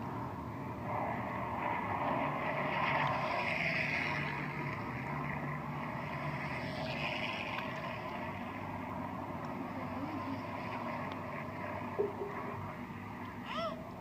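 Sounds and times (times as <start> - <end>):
distant piston engine drone: 0.0 - 14.0.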